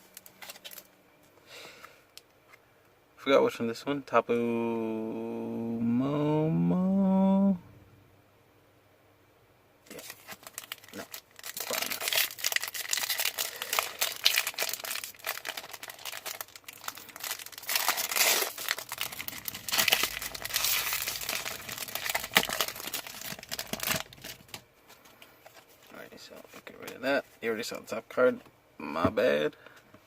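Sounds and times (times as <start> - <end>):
foil wrapper crinkling and tearing: 0.0 - 0.9, 9.9 - 25.9.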